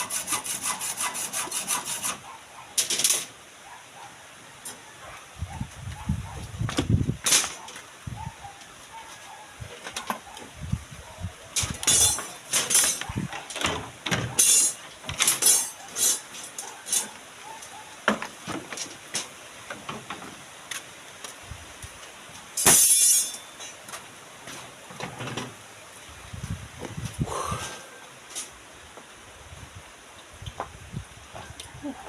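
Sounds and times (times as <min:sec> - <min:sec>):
construction knocks and clatters: 0:11.6 - 0:15.8.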